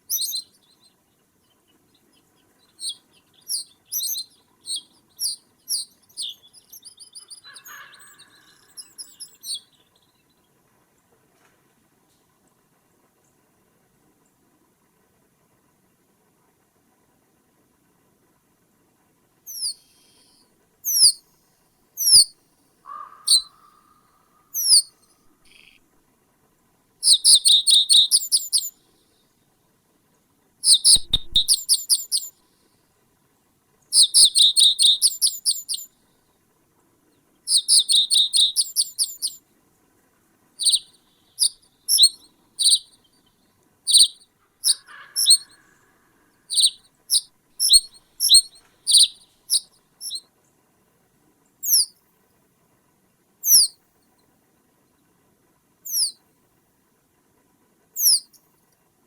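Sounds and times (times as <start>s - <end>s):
small bird calling: 0.0s - 0.9s, 2.6s - 10.0s, 19.5s - 21.2s, 22.0s - 25.8s, 27.0s - 28.9s, 30.6s - 32.4s, 33.9s - 35.9s, 37.5s - 39.4s, 40.6s - 50.2s, 51.6s - 52.0s, 53.4s - 53.8s, 55.8s - 56.2s, 58.0s - 58.4s
bird trill: 0.1s - 0.8s, 2.7s - 9.9s, 19.5s - 21.2s, 22.0s - 22.3s, 22.9s - 25.8s, 27.0s - 28.8s, 30.6s - 32.3s, 33.9s - 35.9s, 37.5s - 39.4s, 40.6s - 43.1s, 43.9s - 45.7s, 46.5s - 50.2s, 51.6s - 51.9s, 53.4s - 53.7s, 55.9s - 56.2s, 58.0s - 58.4s.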